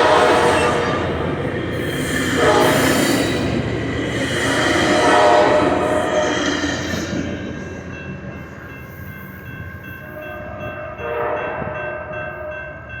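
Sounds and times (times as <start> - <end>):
train horn: 0.0 - 6.9, 10.9 - 12.6
train rumble pulling away: 0.0 - 9.6.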